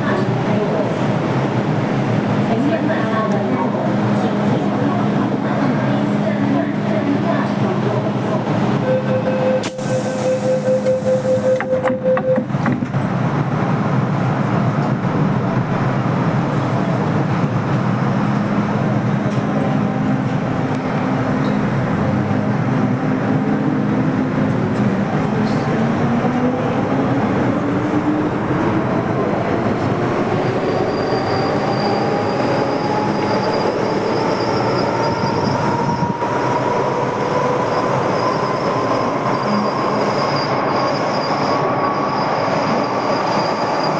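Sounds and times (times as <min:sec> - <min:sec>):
door-closing warning beeps: 0:08.8 - 0:12.6
train running gear rumble: 0:11.5 - 0:43.9.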